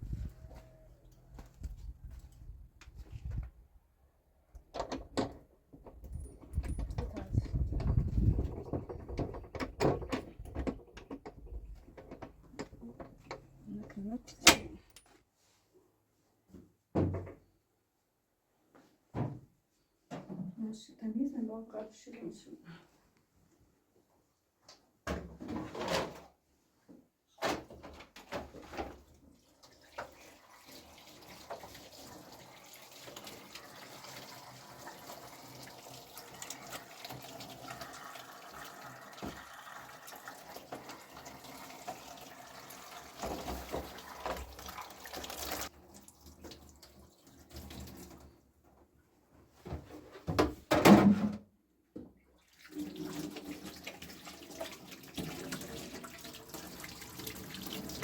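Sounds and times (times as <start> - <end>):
water running and splashing: 29.4 - 48.1, 52.5 - 58.0.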